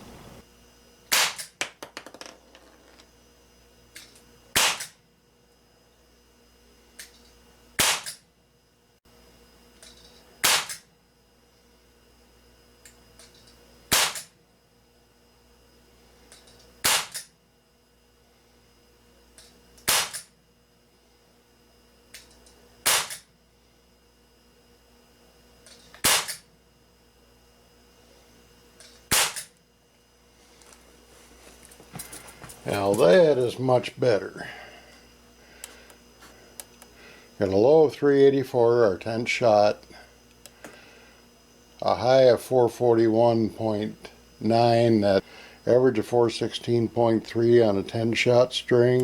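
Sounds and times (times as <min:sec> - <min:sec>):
pellet pistol shots: 0:01.1 - 0:02.1, 0:04.5 - 0:05.0, 0:07.8 - 0:08.2, 0:10.4 - 0:10.9, 0:13.9 - 0:14.3, 0:16.8 - 0:17.3, 0:19.8 - 0:20.3, 0:22.8 - 0:23.3, 0:26.0 - 0:26.4, 0:29.1 - 0:29.6.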